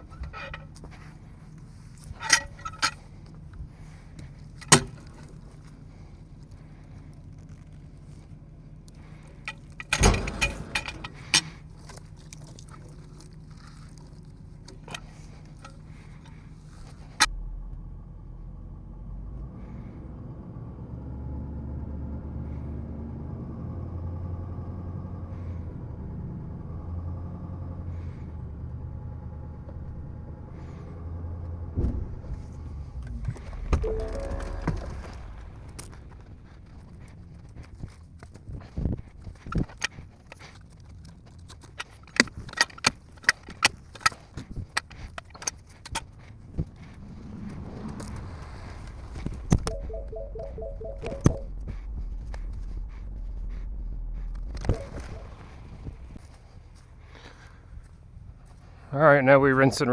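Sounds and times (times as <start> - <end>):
truck engine: 0.0 - 13.0, 14.7 - 38.4, 41.6 - 58.8
loud clattering: 9.5 - 11.6.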